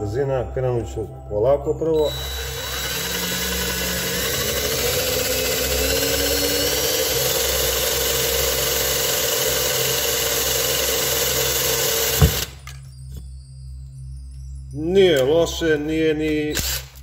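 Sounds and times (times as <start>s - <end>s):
cordless drill drilling steel: 2.0s - 12.6s, 16.5s - 17.0s.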